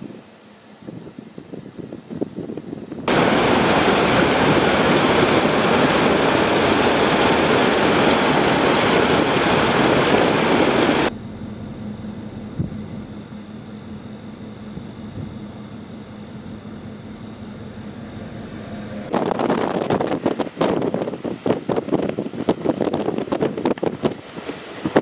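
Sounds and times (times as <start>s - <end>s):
strong wind on microphone: 0.0s - 11.1s, 18.8s - 25.0s
faint wind rumble: 0.0s - 25.0s.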